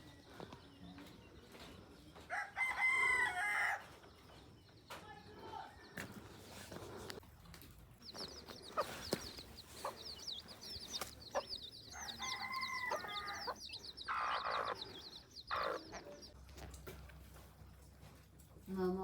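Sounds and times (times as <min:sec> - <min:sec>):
rooster crowing: 0:02.3 - 0:03.8, 0:11.9 - 0:14.8
chickens calling: 0:06.6 - 0:16.4
rapid high-pitched chirping: 0:08.0 - 0:16.4.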